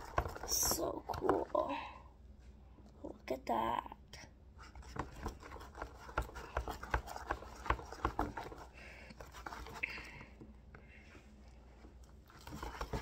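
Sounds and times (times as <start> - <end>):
spoon stirring sticky slime: 0.0 - 1.8, 4.5 - 13.0.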